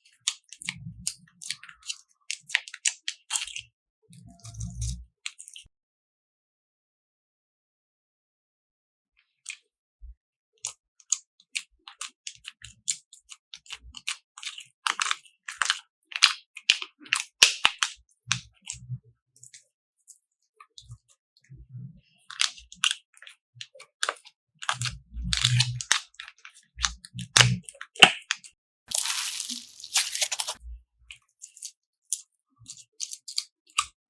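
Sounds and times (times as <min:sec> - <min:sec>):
slime crackling clicks and pops: 0:26.8 - 0:28.2.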